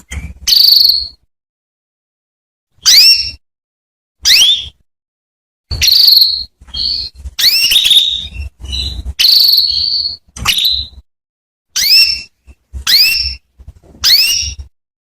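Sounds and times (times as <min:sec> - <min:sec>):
canary calling: 0:02.8 - 0:03.4, 0:04.2 - 0:04.8, 0:05.7 - 0:11.0, 0:11.8 - 0:14.7.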